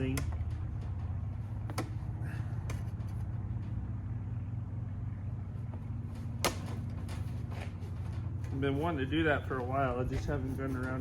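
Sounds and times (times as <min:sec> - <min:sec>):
seat parts clicking and knocking: 0:00.0 - 0:03.9, 0:05.6 - 0:08.6
low mechanical hum: 0:00.0 - 0:11.0.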